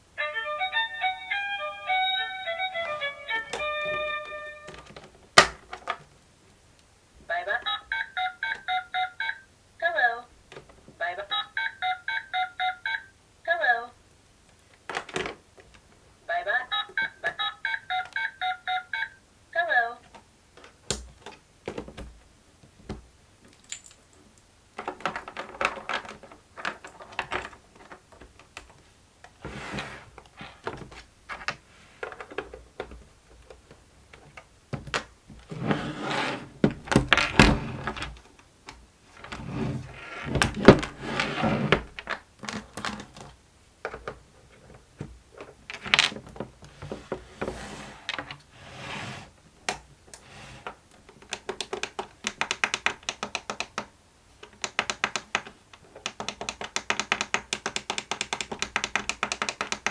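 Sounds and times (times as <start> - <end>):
plastic toy clicks and taps: 51.2 - 59.9.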